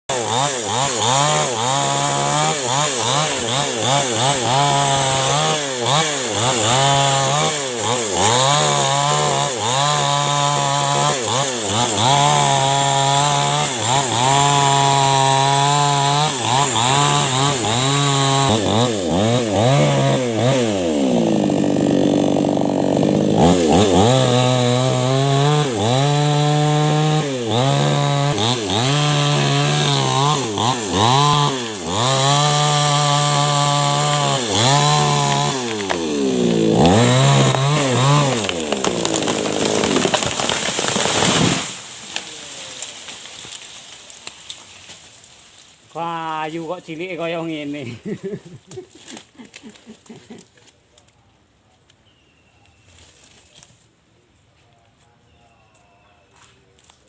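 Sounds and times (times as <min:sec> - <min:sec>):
chainsaw engine revving: 0:00.1 - 0:43.7.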